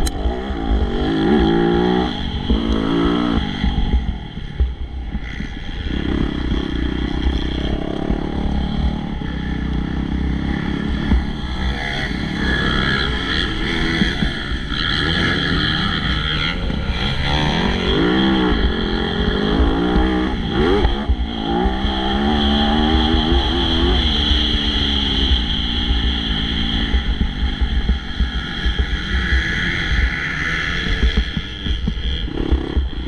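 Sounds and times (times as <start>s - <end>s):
heavy low rumble: 0.0s - 33.0s
motocross bikes revving: 0.0s - 33.0s.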